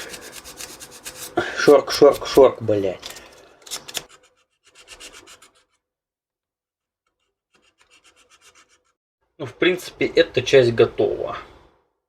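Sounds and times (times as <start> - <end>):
sandpaper rasping on plastic: 0.0 - 5.8, 7.2 - 9.0.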